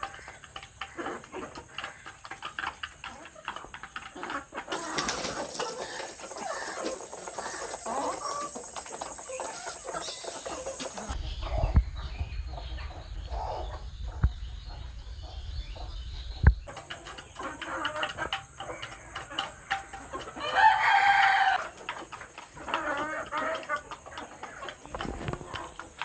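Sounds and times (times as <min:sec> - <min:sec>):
chickens clucking: 0:00.0 - 0:26.0
low rumble: 0:11.2 - 0:16.7
rooster crowing: 0:20.4 - 0:21.7.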